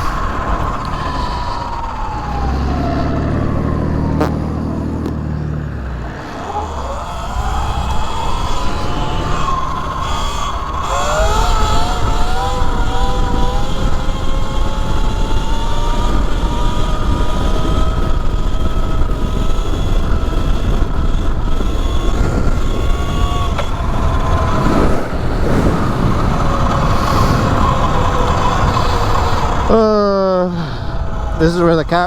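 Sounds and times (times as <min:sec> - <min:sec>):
electric motor whine: 0:00.0 - 0:32.0
low rumble: 0:00.0 - 0:32.0.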